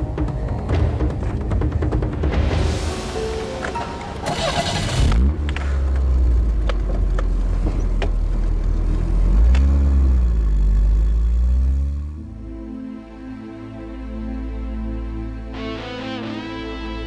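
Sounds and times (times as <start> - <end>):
car engine starting and running: 0.1 - 13.0.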